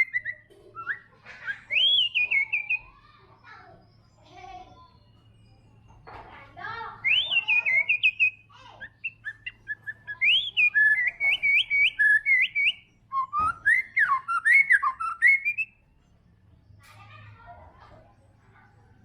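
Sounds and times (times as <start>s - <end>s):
bird singing whistled phrases: 0.0s - 3.0s, 6.9s - 15.8s.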